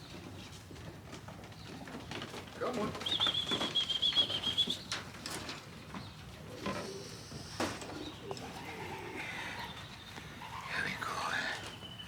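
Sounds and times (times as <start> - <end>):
pigeons cooing softly: 6.2 - 12.0.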